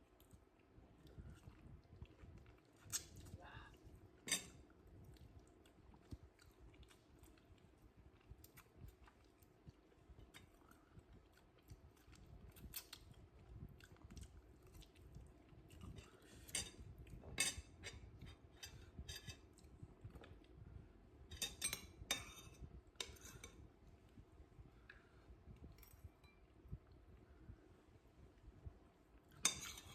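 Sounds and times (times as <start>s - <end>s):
cutlery clinking on a plate: 4.2s - 4.6s, 16.5s - 19.4s, 21.3s - 23.6s, 29.4s - 29.9s.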